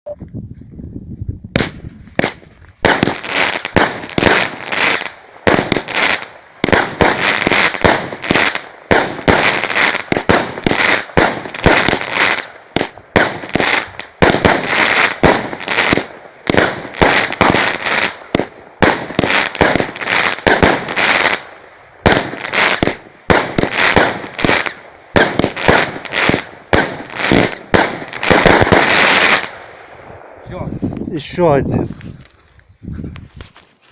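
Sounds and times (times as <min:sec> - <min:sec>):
fireworks bangs: 0:01.5 - 0:30.4.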